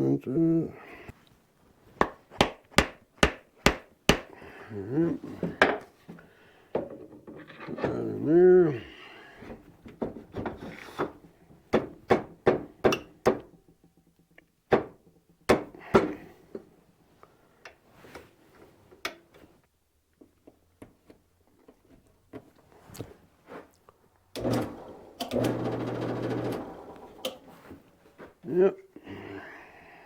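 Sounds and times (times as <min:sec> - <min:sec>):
wooden knocks: 0:02.0 - 0:04.3.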